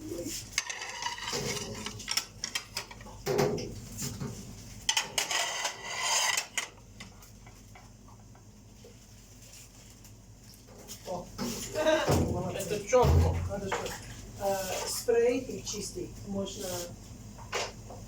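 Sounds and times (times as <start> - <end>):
dishes and utensils clattering: 0.5 - 3.6.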